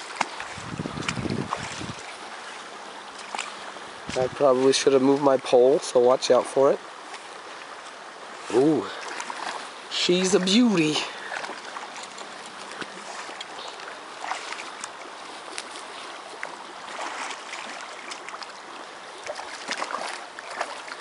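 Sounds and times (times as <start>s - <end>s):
small splashes: 0.0s - 5.6s, 6.9s - 21.0s
river water running: 0.0s - 21.0s.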